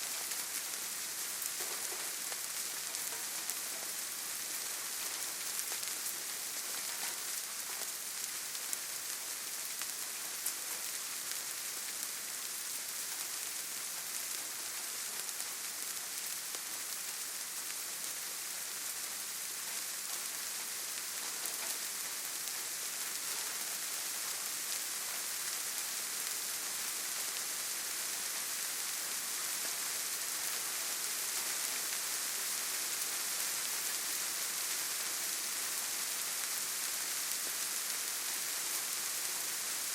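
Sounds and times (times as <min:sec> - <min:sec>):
rain on leaves: 0:00.0 - 0:39.9.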